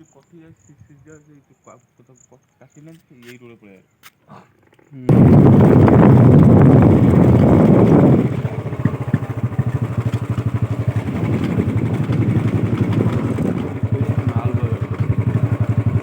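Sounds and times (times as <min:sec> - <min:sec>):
vehicle engine running: 0:05.1 - 0:16.0.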